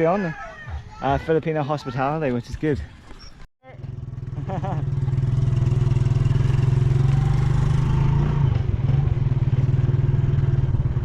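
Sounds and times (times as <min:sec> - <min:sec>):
small motorcycle engine running: 0:03.7 - 0:11.0.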